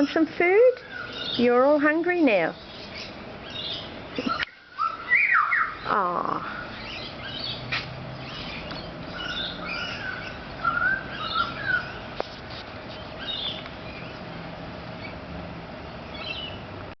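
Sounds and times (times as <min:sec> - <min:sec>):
birds calling with fluted whistles: 0:00.7 - 0:01.8, 0:02.4 - 0:12.2, 0:12.8 - 0:14.2, 0:16.1 - 0:16.7
high bird chirps: 0:02.6 - 0:12.1, 0:12.9 - 0:14.2.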